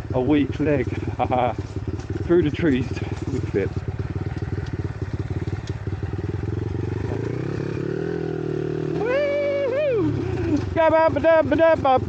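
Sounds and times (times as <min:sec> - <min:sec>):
small motorbike engine chugging: 0:00.0 - 0:12.0.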